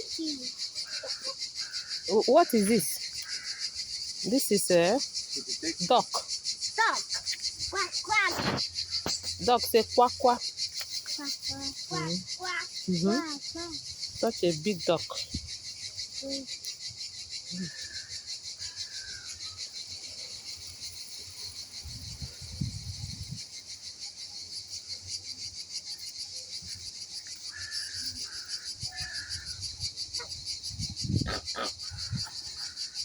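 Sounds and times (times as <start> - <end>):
insects trilling: 0.0 - 33.0
short calls: 31.0 - 32.8.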